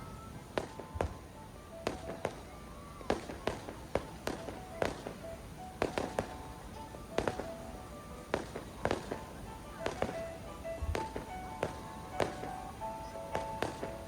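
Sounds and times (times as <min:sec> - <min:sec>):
fireworks banging: 0:00.0 - 0:14.0.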